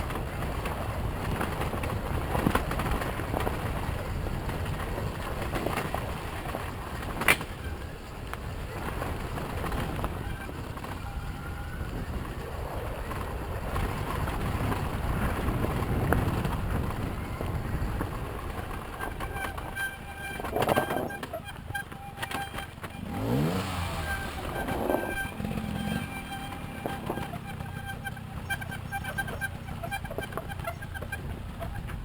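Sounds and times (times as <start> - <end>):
dirt bike engine revving: 19.0 - 31.4.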